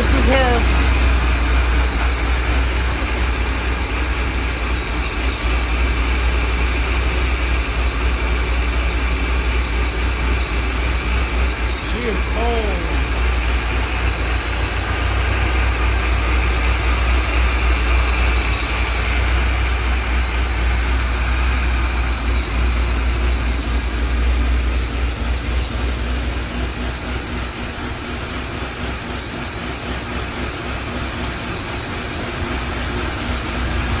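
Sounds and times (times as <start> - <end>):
car engine idling: 0.0 - 34.0
thin high whine: 9.6 - 21.2.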